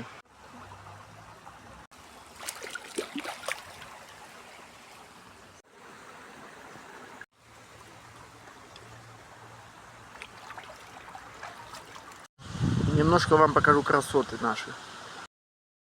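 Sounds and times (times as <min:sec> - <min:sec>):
river rushing: 0:02.0 - 0:12.2.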